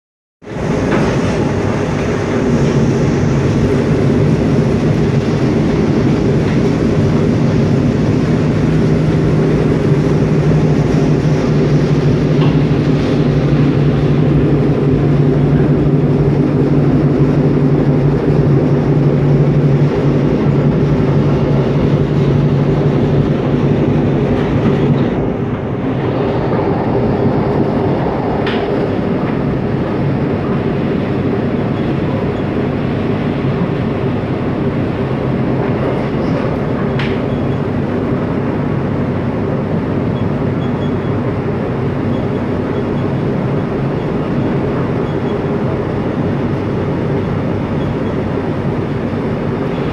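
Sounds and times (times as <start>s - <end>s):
train wheels rumbling on track: 0.4s - 49.9s
low hum: 0.5s - 39.3s.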